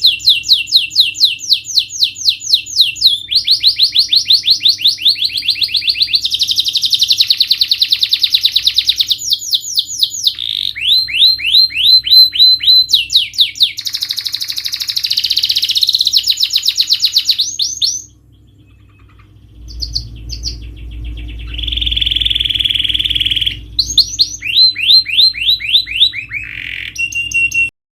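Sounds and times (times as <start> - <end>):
canary singing trills: 0.0 - 27.7
faint low hum: 0.0 - 27.7.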